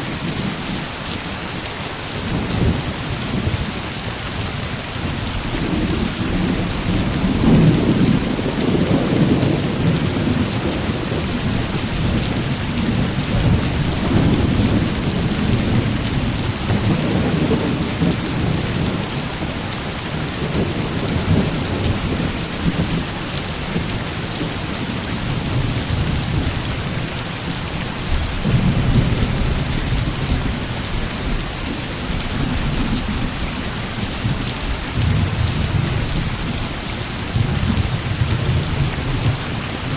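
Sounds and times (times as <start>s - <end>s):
heavy rain falling: 0.0s - 39.9s
thunder rumbling: 5.6s - 19.6s.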